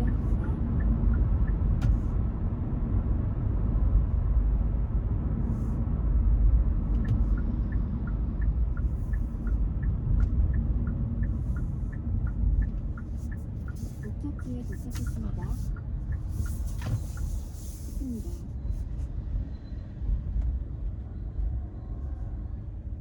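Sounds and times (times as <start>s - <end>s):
turn signal ticking: 0.0s - 2.3s, 6.4s - 18.5s
road and engine rumble: 0.0s - 23.0s.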